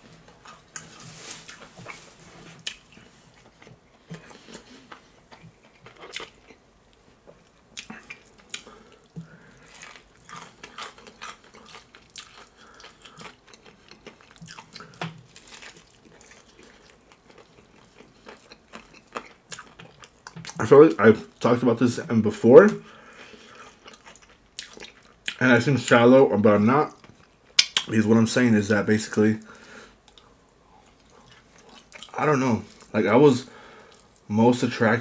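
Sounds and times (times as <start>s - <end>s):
chewing crunchy fried chicken: 0.3s - 21.5s, 22.8s - 25.4s, 29.9s - 33.0s, 33.7s - 34.3s.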